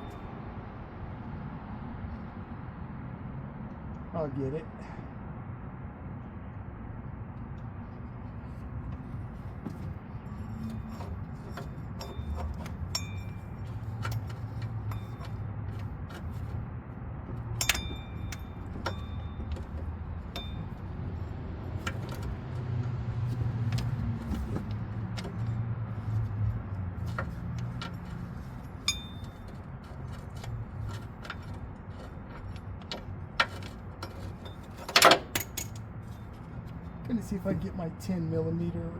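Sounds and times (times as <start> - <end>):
metal tools clinking on engine parts: 9.7 - 16.6, 17.5 - 22.6, 27.0 - 37.0.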